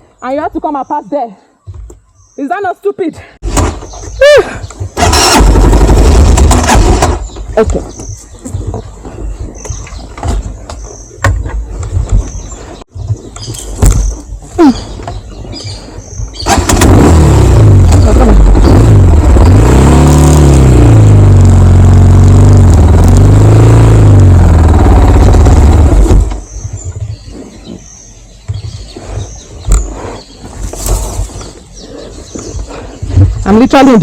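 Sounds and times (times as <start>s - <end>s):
motorcycle engine revving: 4.8s - 8.0s, 16.3s - 26.9s.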